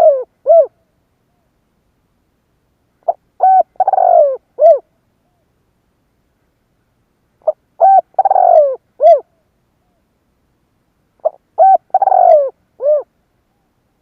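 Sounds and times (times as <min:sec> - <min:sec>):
dove cooing: 0:00.0 - 0:00.8, 0:03.0 - 0:05.4, 0:07.4 - 0:10.0, 0:11.2 - 0:13.7.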